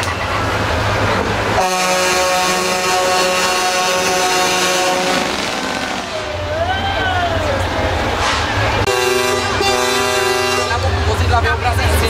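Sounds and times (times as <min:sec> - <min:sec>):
truck engines rumbling: 0:00.0 - 0:12.0
truck air horn blast: 0:01.6 - 0:06.3, 0:08.2 - 0:10.9.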